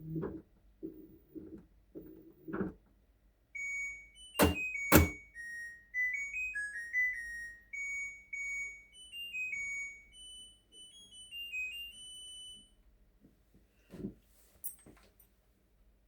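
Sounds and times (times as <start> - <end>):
washing machine beeping melody: 3.5 - 12.8.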